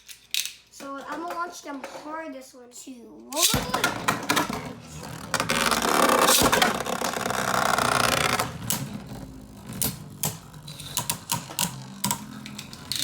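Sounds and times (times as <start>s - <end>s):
spinning tops whirring: 3.4s - 13.0s.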